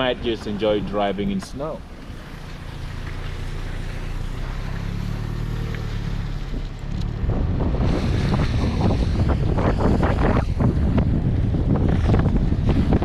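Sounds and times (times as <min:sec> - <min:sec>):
low road rumble: 0:00.0 - 0:13.0
wind on microphone: 0:06.4 - 0:13.0.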